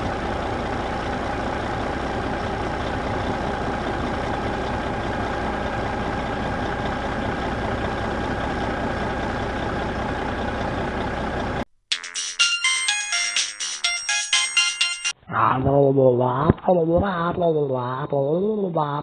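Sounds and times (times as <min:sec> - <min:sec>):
truck engine idling: 0:00.0 - 0:11.7.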